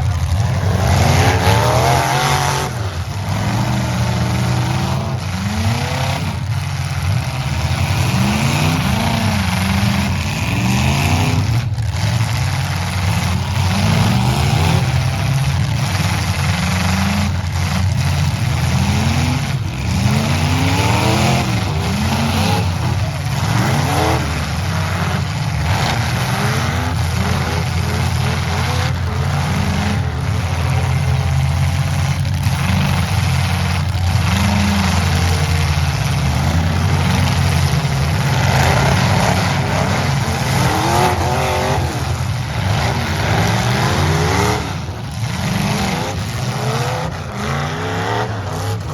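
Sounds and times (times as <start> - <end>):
truck engines revving: 0.0 - 48.9.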